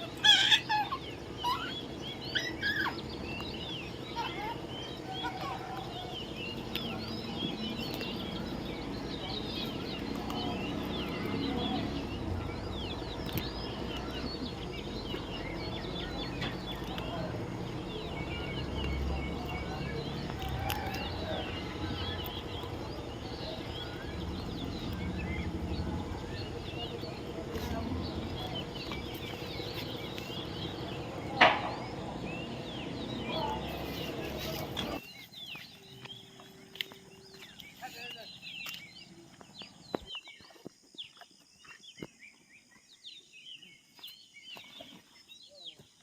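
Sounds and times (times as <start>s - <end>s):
parrots chattering: 0.0s - 3.1s
low background rumble: 0.0s - 35.0s.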